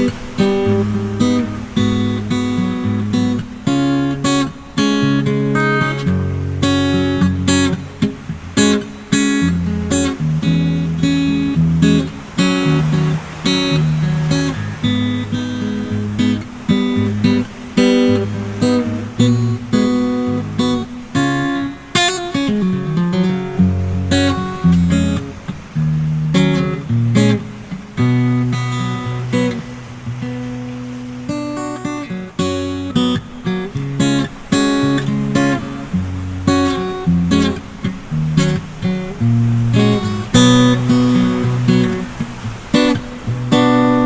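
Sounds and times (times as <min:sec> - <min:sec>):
acoustic guitar strumming chords: 0:00.0 - 0:44.0.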